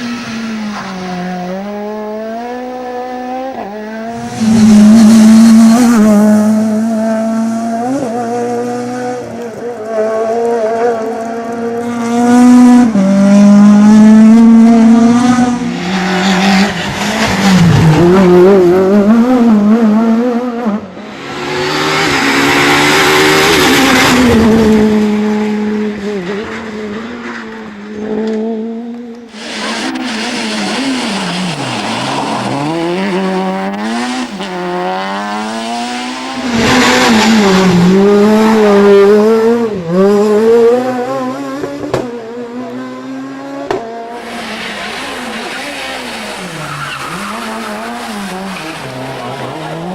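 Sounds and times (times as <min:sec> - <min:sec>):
rally car engines revving: 0:00.0 - 0:49.9
broad rushing noise: 0:29.3 - 0:38.1, 0:44.1 - 0:49.9.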